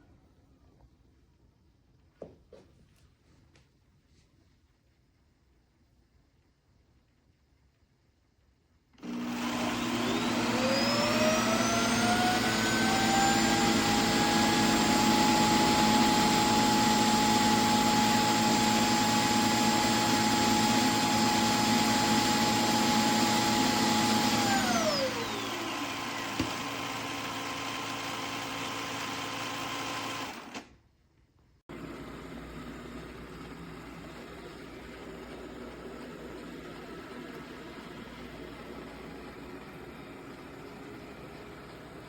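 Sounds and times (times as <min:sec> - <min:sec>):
suction motor whining: 0:09.0 - 0:30.6.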